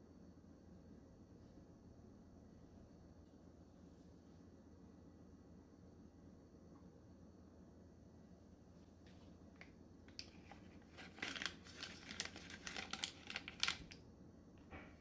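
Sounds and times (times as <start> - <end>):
crinkling and rustling: 9.0 - 14.0.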